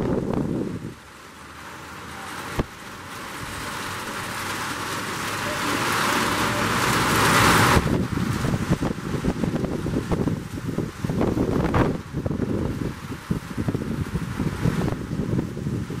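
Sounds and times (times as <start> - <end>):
wind buffeting microphone: 0.0 - 1.1, 6.3 - 16.0
rain hissing: 0.0 - 16.0.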